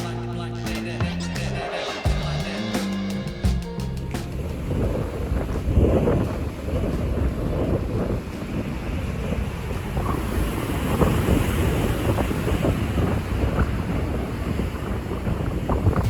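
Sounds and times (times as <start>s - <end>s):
wind buffeting microphone: 3.5s - 16.0s.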